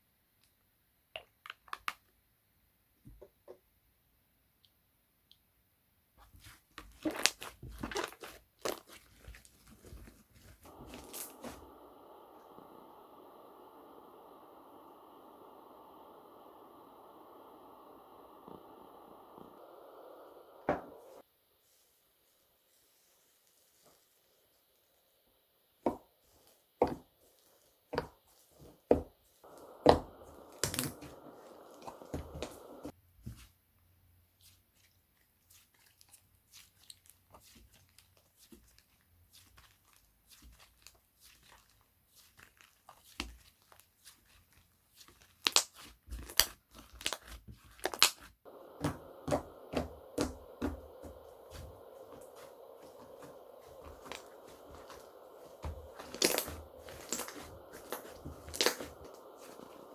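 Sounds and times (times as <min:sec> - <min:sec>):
sharp pops and clicks: 0:28.9 - 0:32.9, 0:45.4 - 0:59.9
slime squished by hand: 0:34.4 - 0:51.7, 0:52.4 - 0:59.8
crackly tearing of slime: 0:44.9 - 0:48.3.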